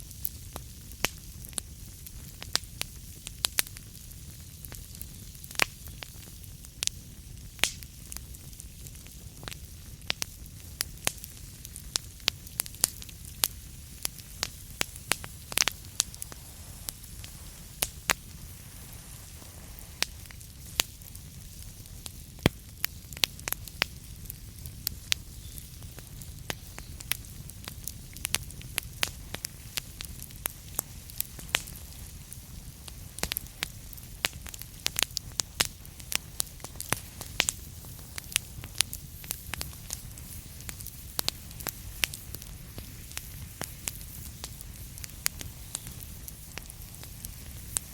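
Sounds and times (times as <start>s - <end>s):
sharp pops of fire: 0.0s - 47.9s
soft hiss: 0.0s - 47.9s
wood fire crackling: 0.0s - 47.9s.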